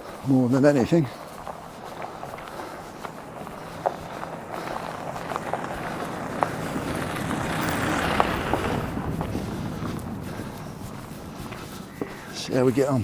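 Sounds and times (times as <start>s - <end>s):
footsteps: 0.0s - 13.0s
vehicle passing by: 0.4s - 13.0s.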